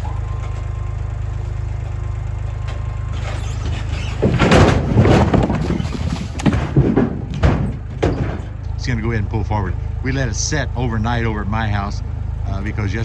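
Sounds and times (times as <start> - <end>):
logs tumbling out of trailer: 0.0 - 9.0
idling engine drone: 0.0 - 13.0
heavy thuds: 1.4 - 8.9.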